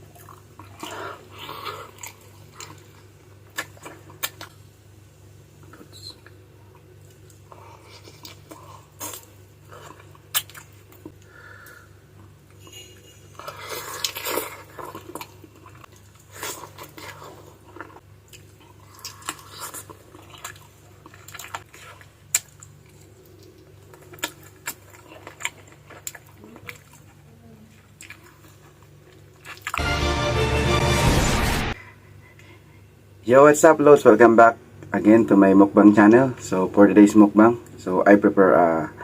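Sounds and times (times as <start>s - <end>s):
wet chewing and biting: 13.5s - 27.2s, 27.8s - 29.8s.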